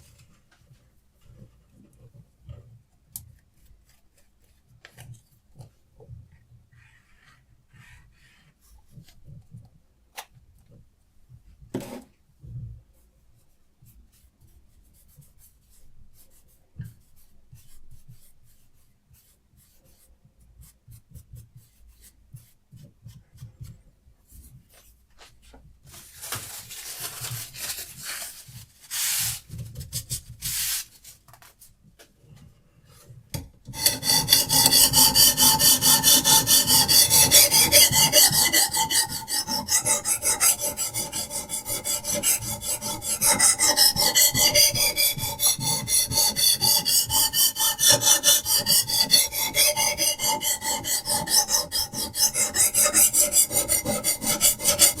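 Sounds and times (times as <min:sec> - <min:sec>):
sharpening stone rasping on knife: 0:33.8 - 0:55.0.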